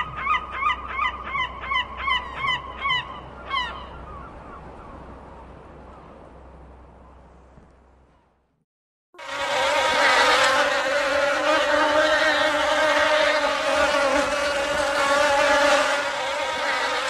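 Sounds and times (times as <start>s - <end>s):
bees buzzing: 9.2s - 17.0s.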